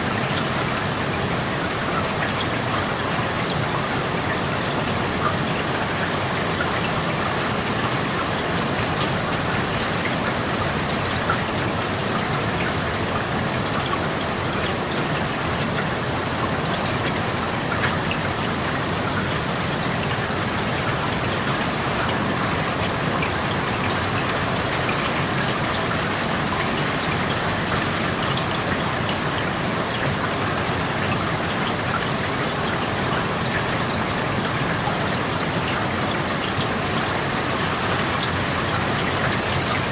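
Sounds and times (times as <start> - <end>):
raindrops ticking on surfaces: 0.0 - 39.9.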